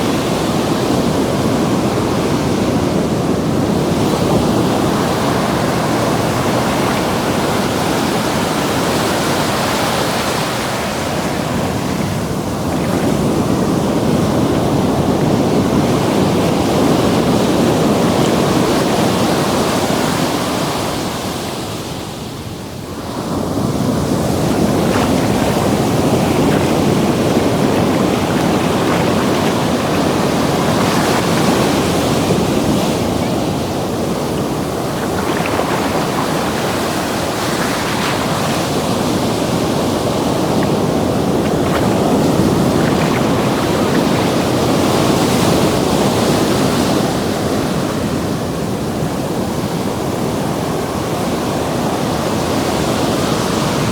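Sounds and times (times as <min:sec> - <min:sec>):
ocean waves breaking: 0:00.0 - 0:20.2, 0:23.0 - 0:47.4.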